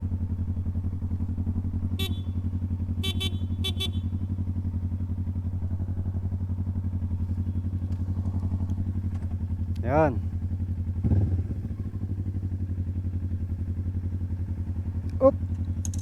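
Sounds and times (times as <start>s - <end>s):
motorcycle engine running: 0.0s - 16.0s
horn beeps: 1.9s - 4.3s.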